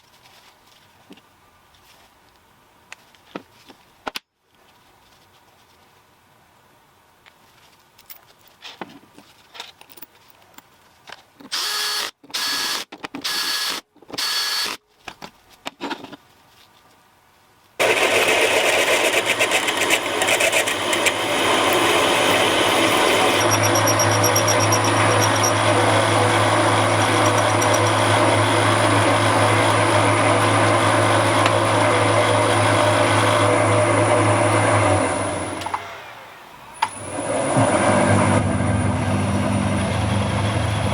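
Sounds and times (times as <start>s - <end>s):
power tool running: 11.5s - 14.8s, 17.8s - 36.2s.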